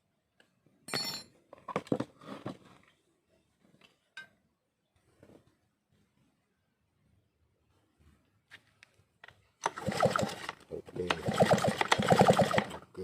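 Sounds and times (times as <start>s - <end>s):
metal objects clinking and knocking: 0.9s - 2.0s.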